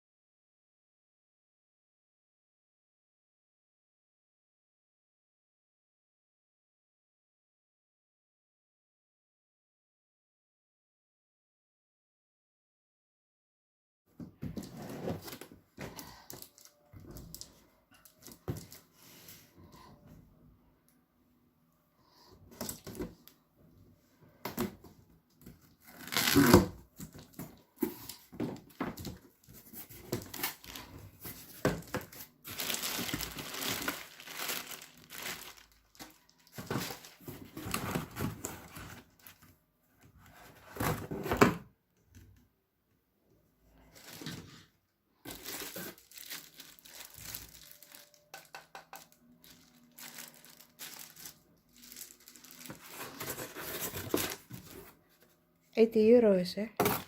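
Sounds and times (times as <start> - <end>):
packaging crinkling and tearing: 25.7 - 39.4, 45.3 - 54.8.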